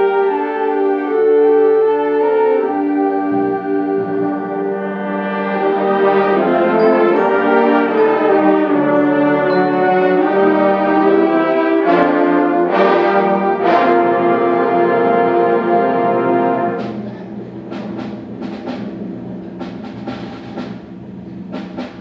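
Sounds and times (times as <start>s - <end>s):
concert band brass chords: 0.0s - 22.0s
percussion crashes: 16.8s - 22.0s.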